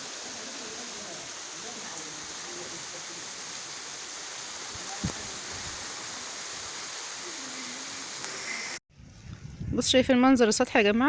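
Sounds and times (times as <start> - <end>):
heavy rain: 0.0 - 8.8.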